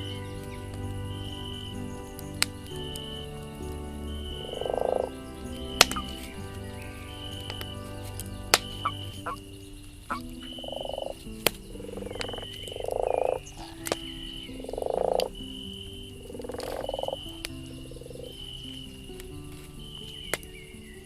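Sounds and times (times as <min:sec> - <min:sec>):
frog croaking: 0:00.0 - 0:20.9
campfire crackling: 0:00.0 - 0:21.0.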